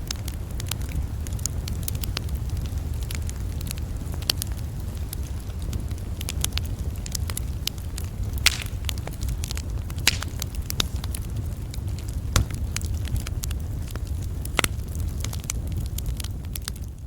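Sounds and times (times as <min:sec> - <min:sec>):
campfire crackling and popping: 0:00.0 - 0:17.0
steady low rumble: 0:05.9 - 0:17.0.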